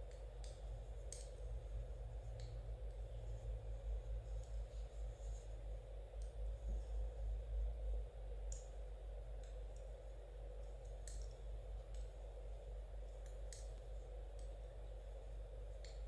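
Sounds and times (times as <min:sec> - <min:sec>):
low background hum: 0:00.0 - 0:16.0
knitting needles clicking: 0:00.1 - 0:01.4, 0:10.6 - 0:12.1.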